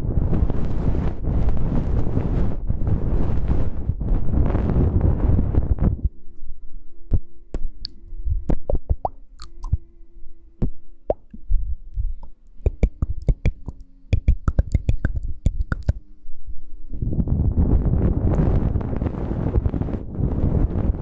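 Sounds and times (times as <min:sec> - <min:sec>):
faint steady hum: 0:00.0 - 0:21.0
sharp clicks and soft taps: 0:10.6 - 0:16.0.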